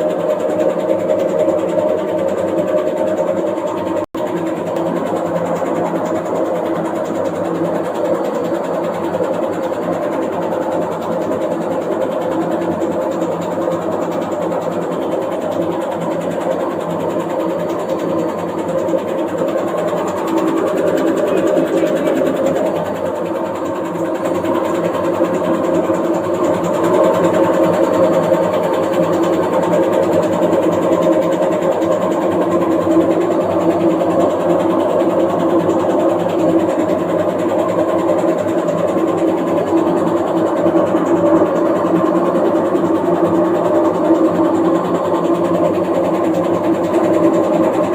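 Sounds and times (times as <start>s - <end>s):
washing machine running: 0.0s - 47.9s.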